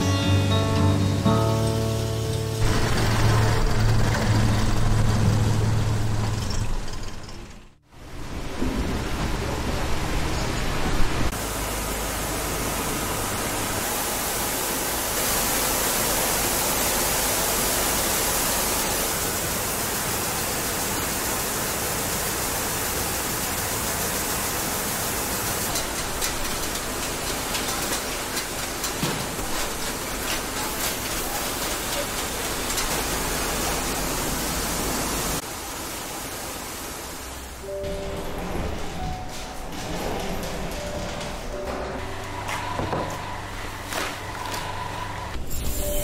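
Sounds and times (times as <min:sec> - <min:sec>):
rice milling machinery: 0:01.6 - 0:06.5, 0:11.4 - 0:37.7.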